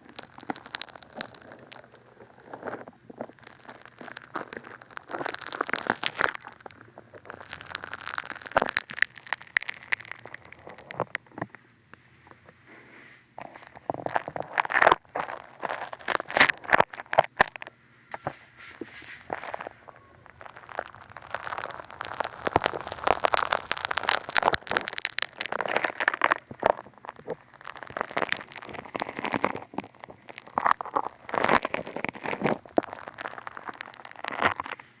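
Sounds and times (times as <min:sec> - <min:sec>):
foam squished against microphone: 0:18.9 - 0:34.6.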